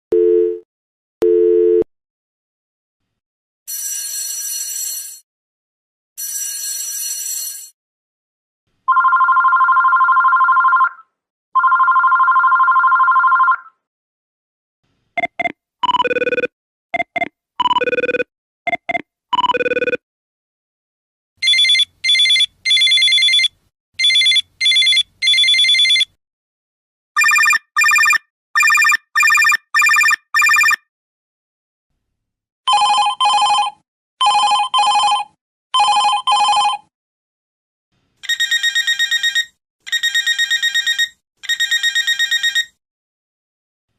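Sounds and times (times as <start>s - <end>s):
two-tone phone ring: 3.7s - 5.2s, 6.2s - 7.8s, 8.9s - 11.0s, 11.6s - 13.6s, 21.4s - 26.1s, 27.2s - 30.8s, 32.7s - 36.9s, 38.3s - 42.8s
short beeping ringtone melody: 27.2s - 30.8s.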